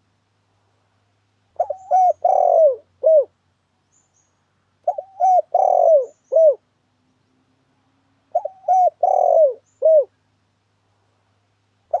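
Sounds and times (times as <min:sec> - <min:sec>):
faint low hum: 0:00.0 - 0:12.0
dove cooing: 0:01.6 - 0:03.3, 0:04.8 - 0:06.6, 0:08.3 - 0:10.2.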